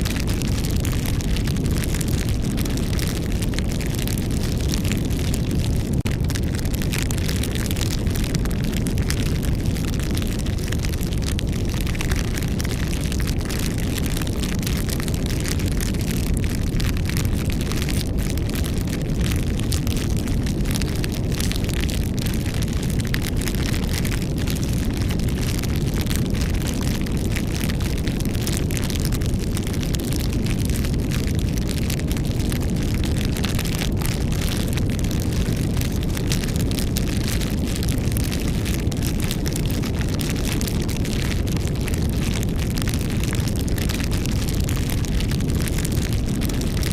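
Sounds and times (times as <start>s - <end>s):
low rumble of flames: 0.0s - 46.9s
wood crackling and popping: 0.0s - 46.9s.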